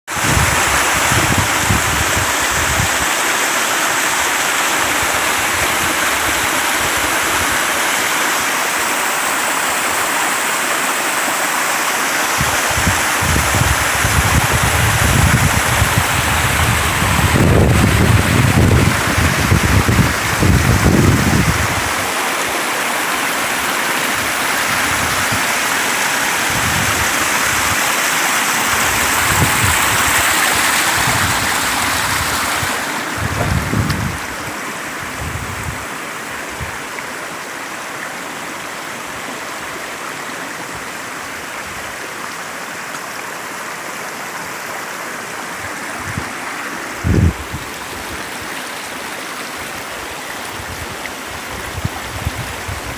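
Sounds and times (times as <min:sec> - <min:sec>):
wind buffeting microphone: 0:00.1 - 0:03.1, 0:12.4 - 0:22.2, 0:24.2 - 0:27.9, 0:28.6 - 0:35.9, 0:47.0 - 0:48.5, 0:50.5 - 0:52.9
water rushing over rocks: 0:00.1 - 0:52.9.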